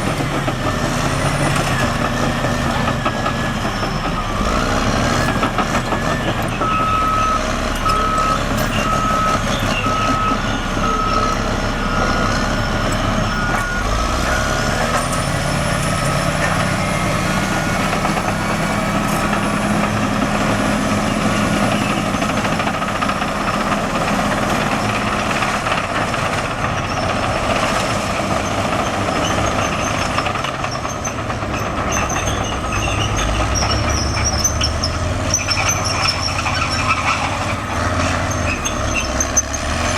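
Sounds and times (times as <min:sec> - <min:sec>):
bulldozer diesel engine: 0:00.0 - 0:39.9
reversing alarm beeping: 0:00.7 - 0:25.0.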